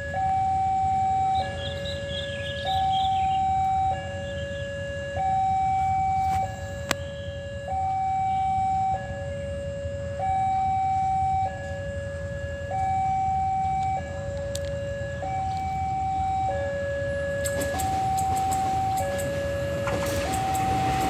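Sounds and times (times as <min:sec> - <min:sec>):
level crossing two-tone alarm: 0:00.0 - 0:21.0
sharp clicks: 0:17.4 - 0:21.0.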